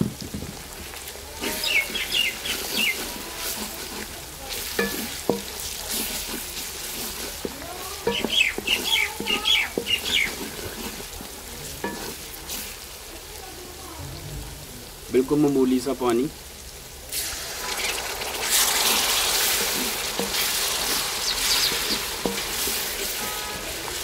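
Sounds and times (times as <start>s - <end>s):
masala sizzling in oil: 0.0s - 24.0s
spatula stirring and scraping: 0.6s - 13.4s, 17.1s - 24.0s
birds chirping: 1.4s - 3.4s, 7.8s - 10.9s, 20.3s - 24.0s
spatula knocking against pan: 4.6s - 6.3s, 7.2s - 11.0s, 11.8s - 12.2s, 20.1s - 23.6s.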